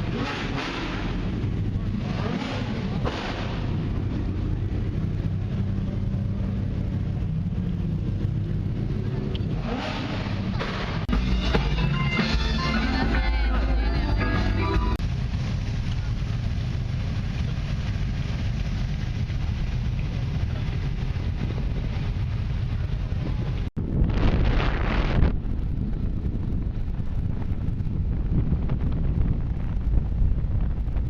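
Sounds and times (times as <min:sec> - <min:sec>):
vehicle engine running: 0:00.0 - 0:31.0
music playing: 0:11.1 - 0:15.0.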